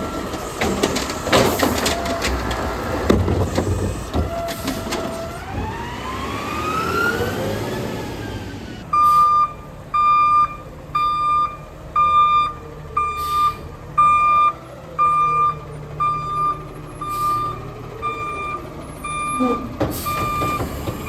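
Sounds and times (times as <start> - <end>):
truck engine running: 8.4 - 21.0
reversing alarm beeping: 8.9 - 21.0.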